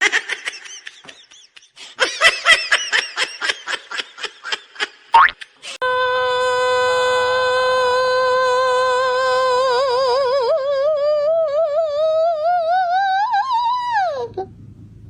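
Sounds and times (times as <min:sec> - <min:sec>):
voice holding long howled note: 0:05.8 - 0:14.5.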